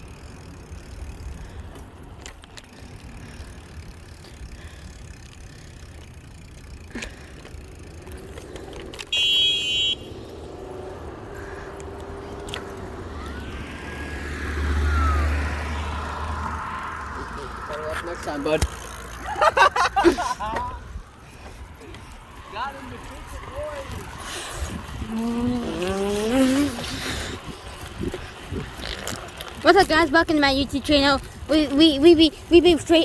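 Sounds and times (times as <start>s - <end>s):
car passing: 0.0s - 33.0s
wind rumble: 10.0s - 18.4s, 19.0s - 32.6s.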